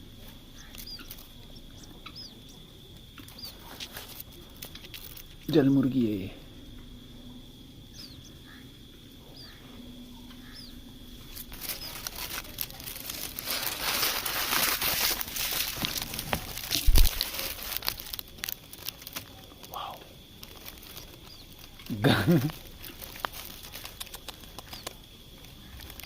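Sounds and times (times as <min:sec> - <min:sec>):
rustling and crackling: 0:00.0 - 0:06.0, 0:10.2 - 0:26.0
faint rising chirps: 0:06.3 - 0:13.4.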